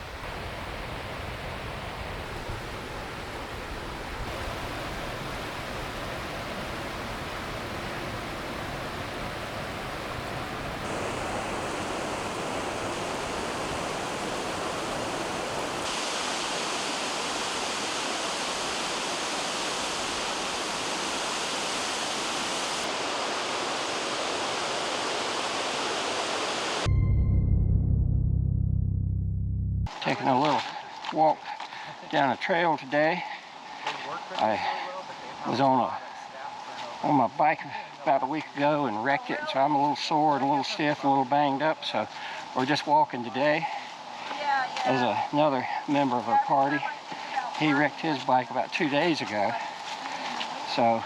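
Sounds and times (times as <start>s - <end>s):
waterfall rushing: 0.0s - 26.9s, 43.2s - 51.0s
loud low rumble: 26.9s - 29.9s.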